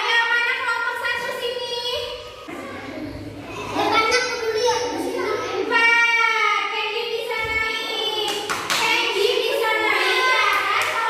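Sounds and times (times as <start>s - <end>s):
children singing together: 7.3s - 11.0s
hand claps: 8.2s - 9.1s.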